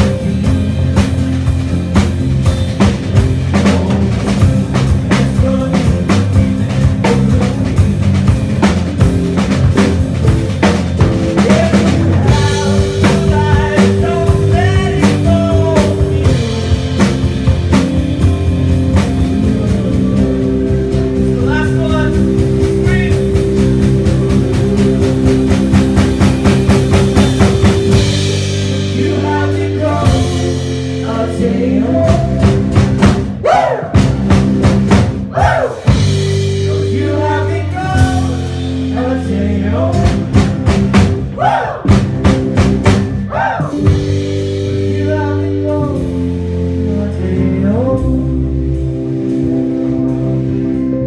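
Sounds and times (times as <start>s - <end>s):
live rock band playing: 0.0s - 51.0s
person singing: 3.5s - 8.4s, 11.2s - 34.1s, 35.3s - 40.7s, 43.3s - 49.3s
fast run of drum hits: 21.4s - 30.8s, 32.0s - 36.8s.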